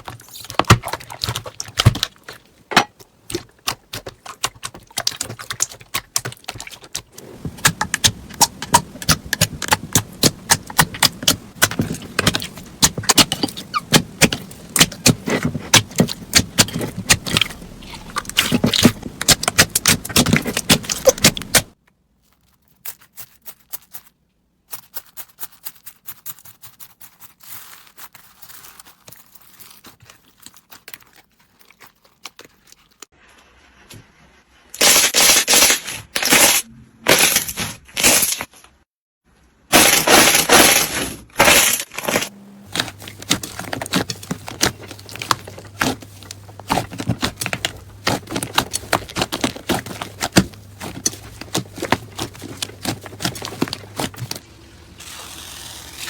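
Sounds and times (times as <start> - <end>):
slime clicking and crackling: 3.2 - 21.8, 41.4 - 54.4.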